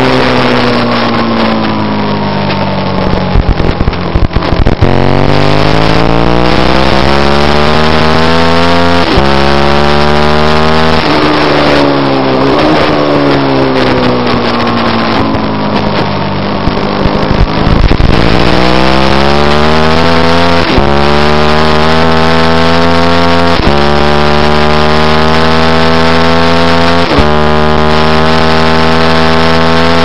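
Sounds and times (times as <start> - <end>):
wind rush: 0.0 - 9.7, 10.8 - 21.2
motorcycle engine at high revs: 0.0 - 30.0.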